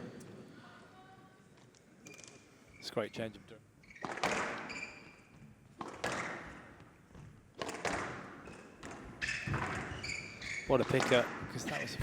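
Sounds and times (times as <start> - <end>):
shoe squeak on court floor: 3.8 - 5.4, 8.4 - 11.2
squash ball thwacks: 5.8 - 6.5, 7.6 - 9.9.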